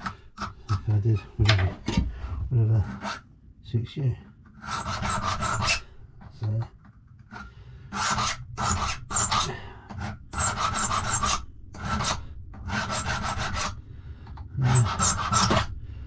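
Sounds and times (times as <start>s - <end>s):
hand file rasping on metal key: 4.6s - 5.8s, 7.3s - 13.8s, 14.6s - 15.7s.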